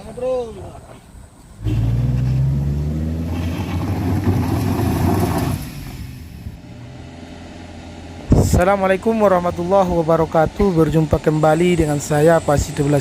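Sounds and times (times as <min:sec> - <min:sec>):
vehicle engine revving: 0:01.6 - 0:10.8.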